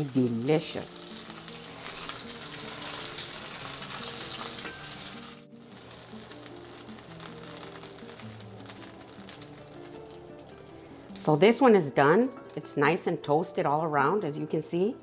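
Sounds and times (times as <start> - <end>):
bread frying in oil: 0.0 - 11.5.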